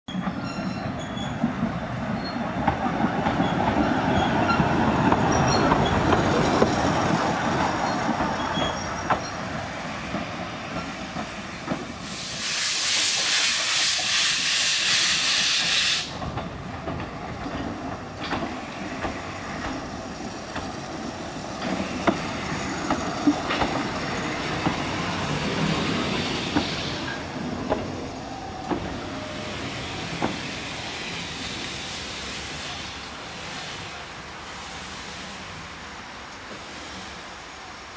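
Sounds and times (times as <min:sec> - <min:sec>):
steam train running: 0:00.2 - 0:37.9
steam hissing: 0:09.3 - 0:16.3, 0:18.4 - 0:35.8.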